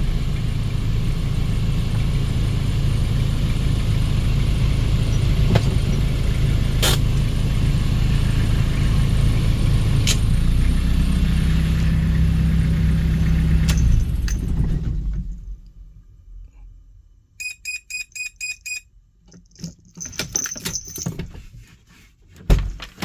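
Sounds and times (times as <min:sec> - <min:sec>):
van engine idling: 0:00.0 - 0:15.6.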